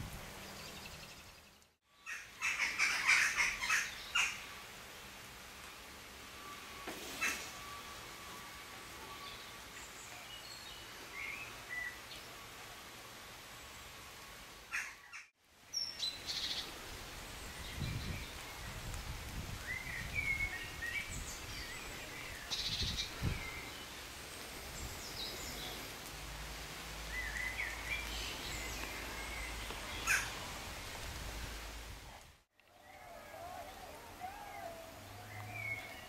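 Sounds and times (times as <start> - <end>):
outdoor background hiss: 0.0 - 36.0
songbirds singing and chirping: 17.3 - 25.9, 27.0 - 31.0, 34.5 - 36.0.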